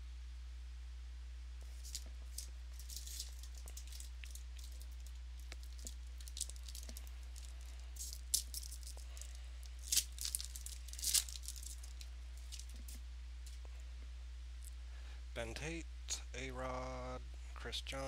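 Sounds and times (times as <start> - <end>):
low electrical hum: 0.0 - 18.0
foil wrappers crinkling: 1.6 - 13.7.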